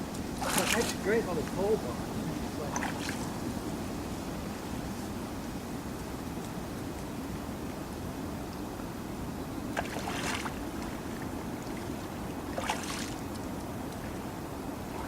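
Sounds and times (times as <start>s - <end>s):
water splashing around boat: 0.0s - 3.6s, 9.7s - 15.0s
wind and water noise: 0.0s - 15.0s.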